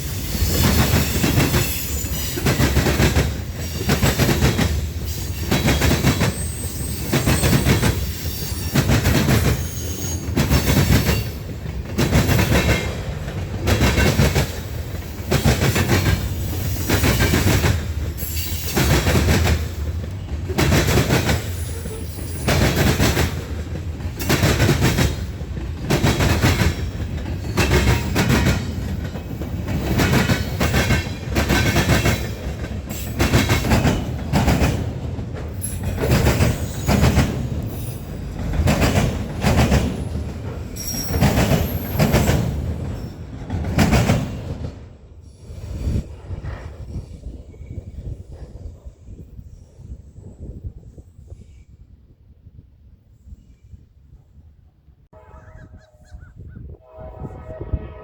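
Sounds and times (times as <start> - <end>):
train wheels clattering over rail joints: 0.0 - 45.0.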